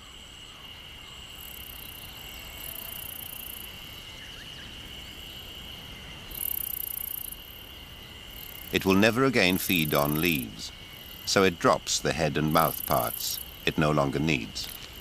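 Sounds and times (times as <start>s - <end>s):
insects chirping: 0.0s - 15.0s
shrill insect trilling: 1.0s - 4.1s, 6.3s - 15.0s.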